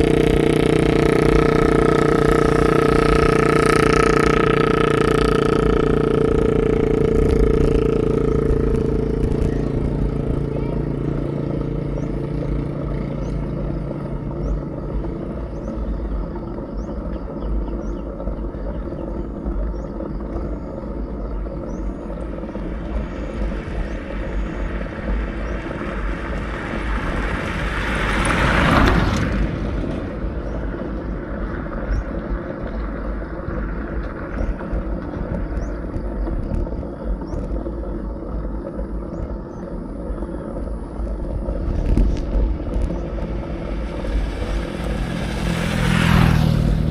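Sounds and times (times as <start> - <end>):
road rumble: 0.0 - 46.9
wind buffeting microphone: 0.0 - 46.9
loud rushing sound: 41.4 - 46.9.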